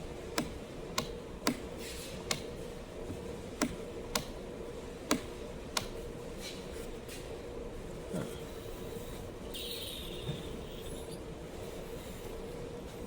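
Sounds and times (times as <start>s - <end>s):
steady background hum: 0.0s - 13.0s
sharp clicks and taps: 3.6s - 4.3s.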